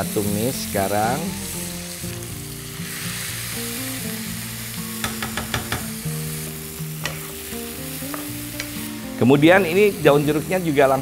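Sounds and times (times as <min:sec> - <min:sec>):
spice paste sizzling in hot oil: 0:00.0 - 0:11.0
spatula clicking against pan: 0:05.0 - 0:05.9.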